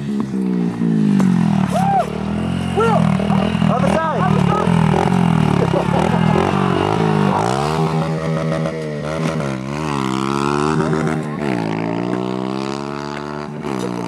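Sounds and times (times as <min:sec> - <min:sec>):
pit bike engine revving: 0:00.0 - 0:14.0.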